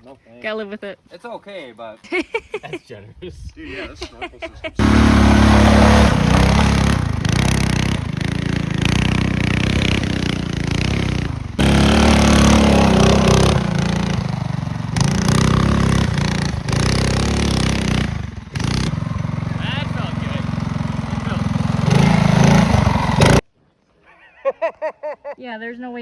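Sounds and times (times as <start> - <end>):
small engine running hard: 4.8 - 23.4.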